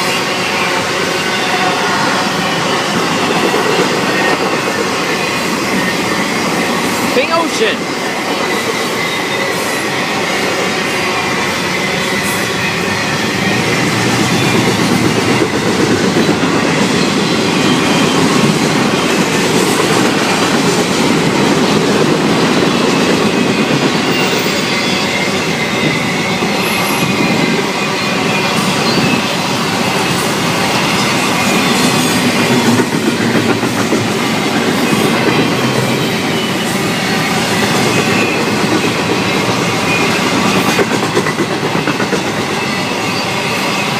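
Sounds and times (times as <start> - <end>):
freight train rumbling past: 0.0 - 43.9
train wheels clickety-clack: 0.0 - 43.9.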